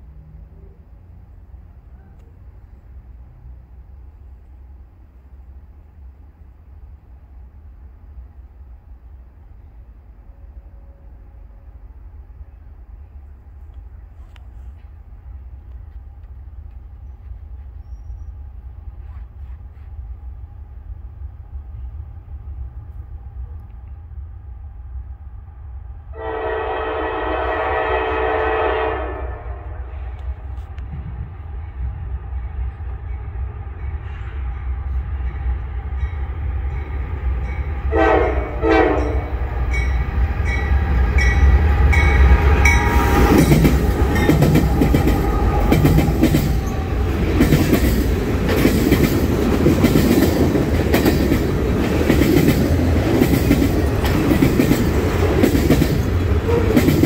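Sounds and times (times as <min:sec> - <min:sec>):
diesel engines rumbling: 0:00.0 - 0:08.4
train air horn blasts: 0:26.1 - 0:30.2, 0:37.9 - 0:39.5, 0:56.4 - 0:57.0
wheels clattering over rails: 0:41.5 - 0:57.0.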